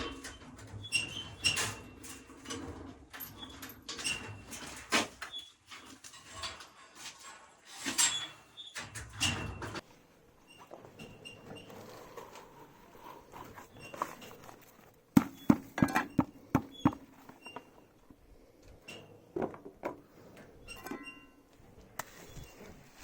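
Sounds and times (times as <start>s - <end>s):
sharp knocks and thuds: 15.2s - 17.1s.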